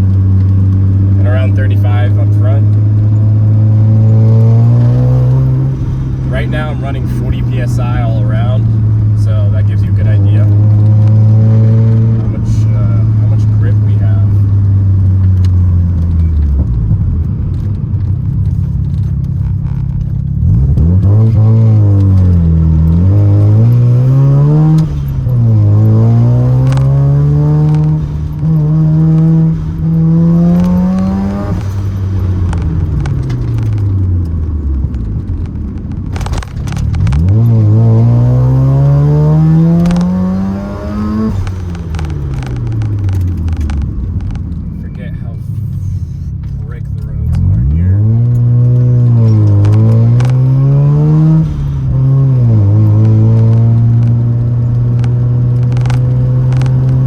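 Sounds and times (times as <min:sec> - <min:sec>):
rotary engine revving: 0:00.0 - 0:57.0.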